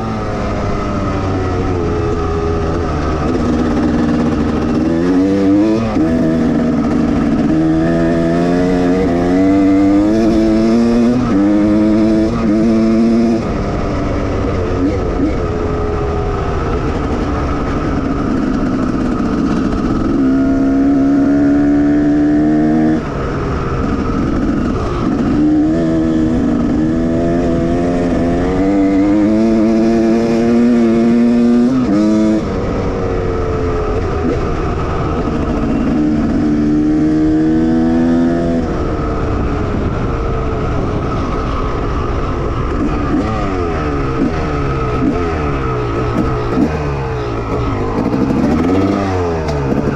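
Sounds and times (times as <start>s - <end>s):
motocross engine revving: 0.0s - 23.0s, 42.7s - 49.9s.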